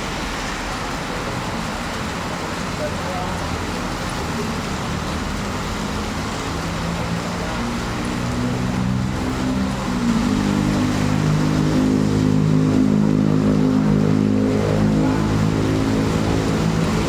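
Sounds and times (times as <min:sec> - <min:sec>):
background traffic noise: 0:00.0 - 0:17.0
vehicle engine running: 0:03.9 - 0:17.0.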